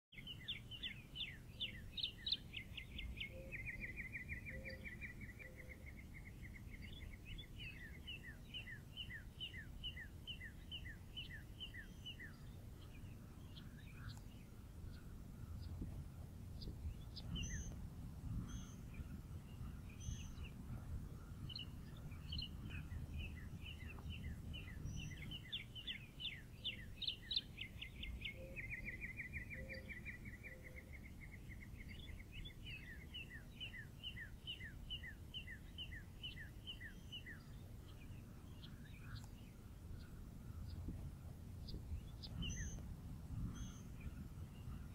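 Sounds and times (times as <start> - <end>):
songbirds chirping: 0.1 - 44.9
low background rumble: 2.6 - 33.3.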